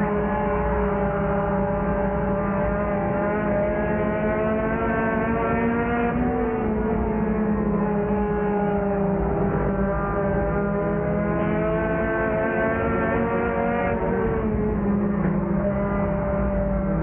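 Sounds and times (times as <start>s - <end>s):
race car engine: 0.0s - 17.0s.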